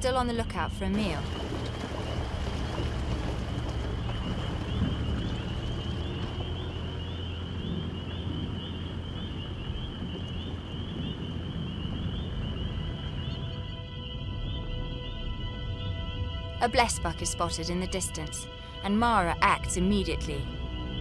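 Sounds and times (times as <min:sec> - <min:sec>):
steady low rumble: 0:00.0 - 0:21.0
music: 0:12.2 - 0:21.0.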